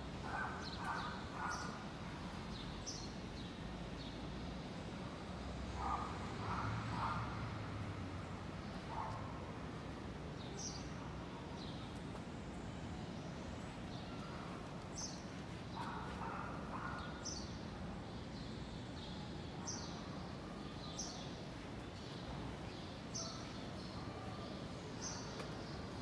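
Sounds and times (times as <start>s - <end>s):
low hum of city background: 0.0s - 26.0s
small birds chirping: 0.2s - 4.3s.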